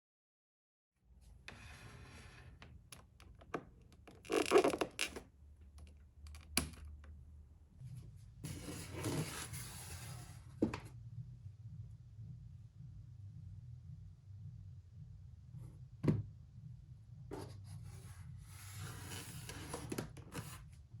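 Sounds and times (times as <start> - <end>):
low steady hum: 1.1 - 21.0
rustling and scraping: 7.8 - 10.9.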